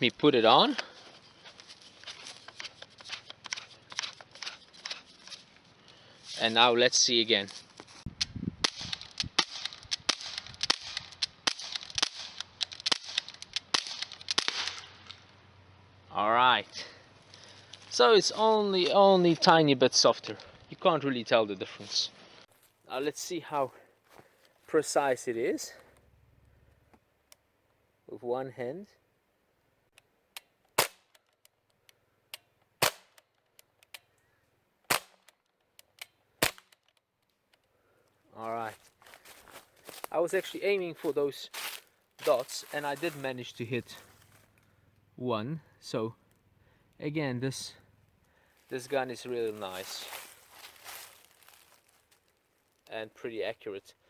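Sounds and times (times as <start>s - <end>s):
airgun firing sharp pops: 8.6s - 14.9s, 30.4s - 31.4s, 32.4s - 33.3s, 34.9s - 35.4s, 36.4s - 36.9s.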